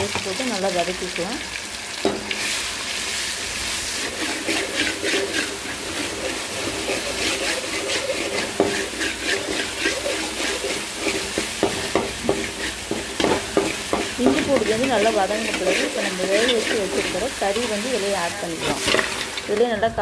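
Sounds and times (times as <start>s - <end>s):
paste sizzling in hot oil: 0.0s - 20.0s
spoon stirring in pan: 3.7s - 19.7s.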